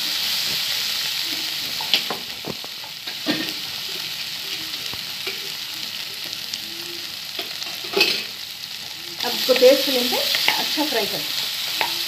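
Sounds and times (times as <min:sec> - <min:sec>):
meat sizzling in a pan: 0:00.0 - 0:12.0
spatula scraping and knocking pan: 0:09.5 - 0:10.8, 0:11.7 - 0:12.0.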